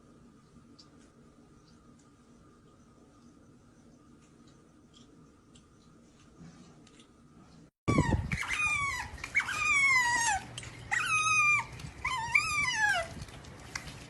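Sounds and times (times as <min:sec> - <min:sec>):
dog whining: 0:07.9 - 0:13.2.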